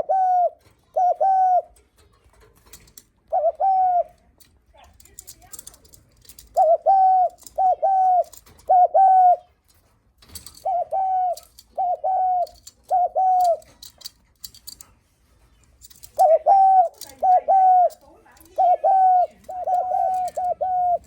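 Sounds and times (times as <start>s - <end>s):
dove cooing: 0.0s - 1.8s, 3.2s - 4.3s, 6.3s - 9.6s, 10.4s - 14.0s, 15.9s - 21.0s.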